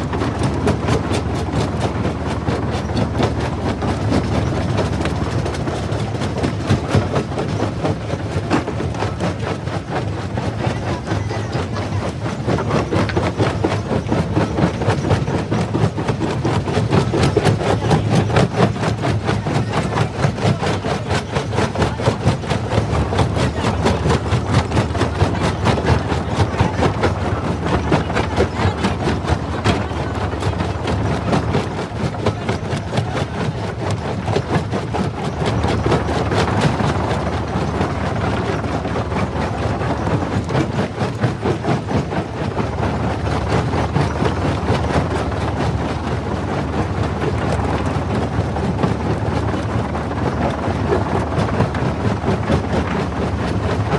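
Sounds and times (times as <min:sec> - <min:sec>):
jaw crusher droning: 0:10.3 - 0:41.4.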